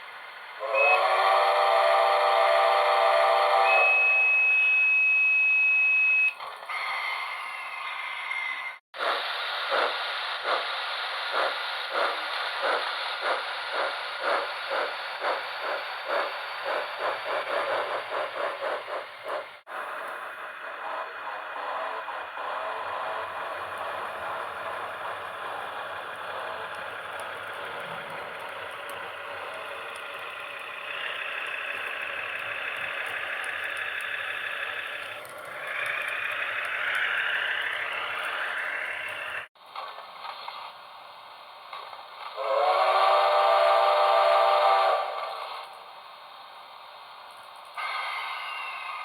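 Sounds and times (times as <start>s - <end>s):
steam locomotive exhaust chuffs: 0.0s - 5.6s, 6.4s - 49.0s
steam locomotive chord whistle: 0.6s - 6.1s, 42.3s - 45.6s
locomotive running noise: 6.3s - 49.0s.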